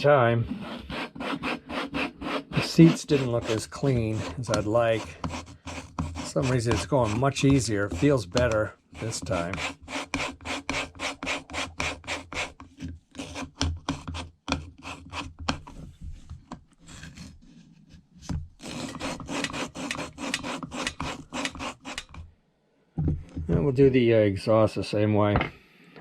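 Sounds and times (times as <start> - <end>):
valve lapping scraping strokes: 0.5 - 12.6, 18.6 - 22.3.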